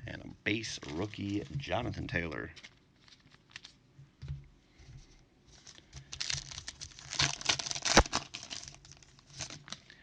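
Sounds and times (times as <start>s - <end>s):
foil wrapper tearing and crinkling: 2.3s - 3.8s, 5.6s - 10.0s
sharp snap: 7.9s - 8.2s.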